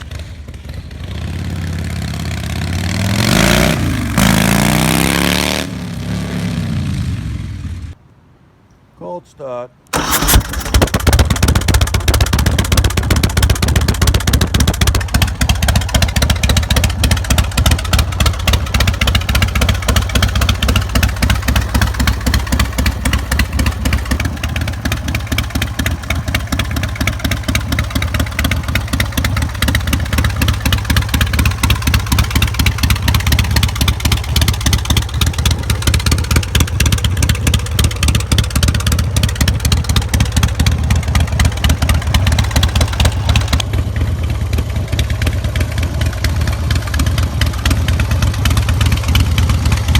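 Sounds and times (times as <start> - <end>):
motorcycle engine idling: 0.0 - 3.2, 10.0 - 49.9.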